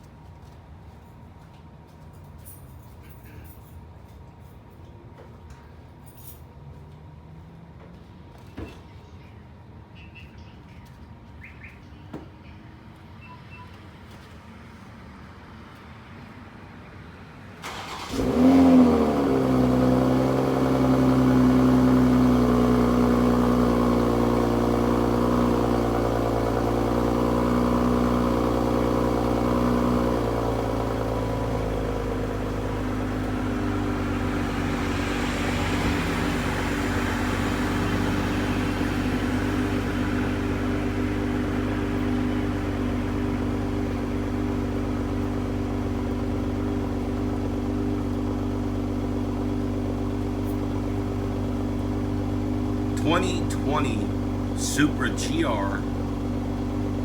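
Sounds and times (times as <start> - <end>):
car engine starting and idling: 17.5 - 57.0.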